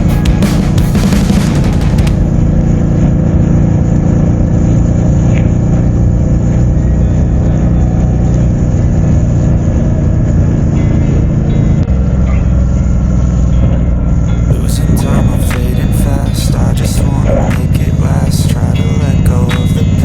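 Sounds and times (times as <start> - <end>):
music track: 0.0 - 3.1, 14.3 - 20.0
motorcycle engine rumble: 0.0 - 20.0.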